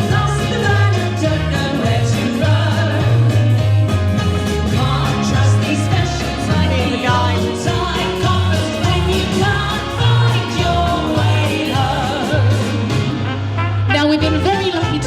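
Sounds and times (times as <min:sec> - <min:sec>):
vocal trio singing in harmony: 0:00.0 - 0:03.8, 0:04.6 - 0:13.2
instrumental backing: 0:00.0 - 0:15.0
steady bass line: 0:00.0 - 0:15.0.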